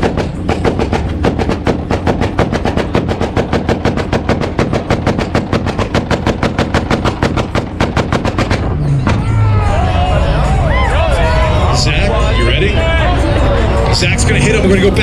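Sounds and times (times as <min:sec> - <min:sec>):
car exhaust popping and banging: 0:00.0 - 0:09.5.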